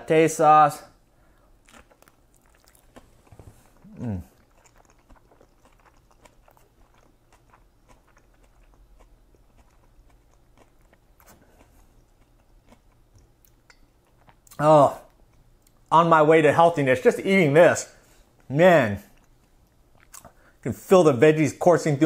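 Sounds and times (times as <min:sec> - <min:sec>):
crunching and chewing: 0:01.3 - 0:15.9, 0:18.3 - 0:20.6
person humming: 0:03.8 - 0:04.3.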